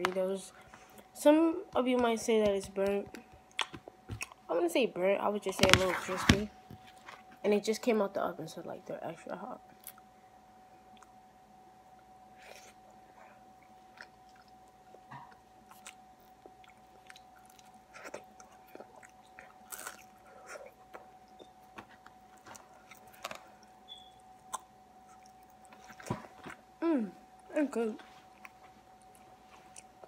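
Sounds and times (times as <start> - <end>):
faint steady hum: 0.0 - 30.0
crunchy chewing and biting: 12.4 - 26.7.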